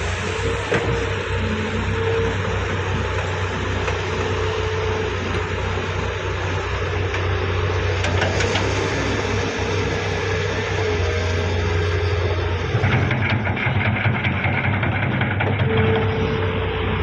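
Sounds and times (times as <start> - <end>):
diesel engines running: 0.0 - 17.0
excavator loading mud: 0.0 - 17.0.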